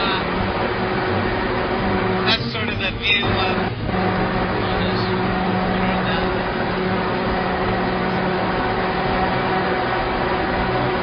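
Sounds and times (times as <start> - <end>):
motor hum: 0.0 - 11.0.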